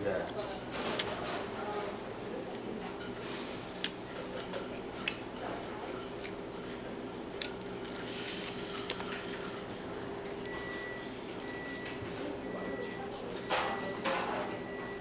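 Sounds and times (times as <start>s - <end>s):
sandwich crunching when bitten: 7.3s - 9.8s.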